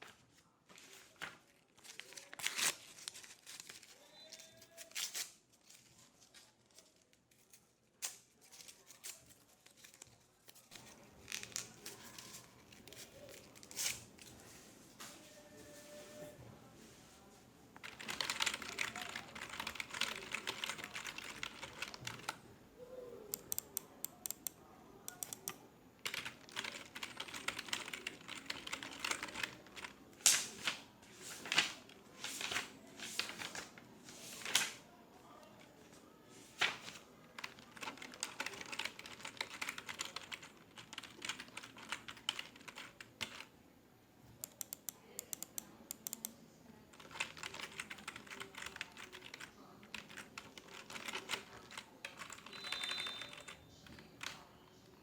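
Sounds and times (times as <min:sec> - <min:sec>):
typing on a computer keyboard: 0:17.8 - 0:22.4, 0:23.3 - 0:30.0, 0:37.4 - 0:43.5, 0:44.4 - 0:54.5.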